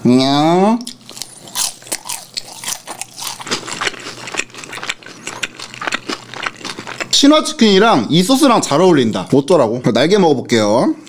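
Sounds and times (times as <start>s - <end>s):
crunchy chewing crackles: 0.8s - 8.8s.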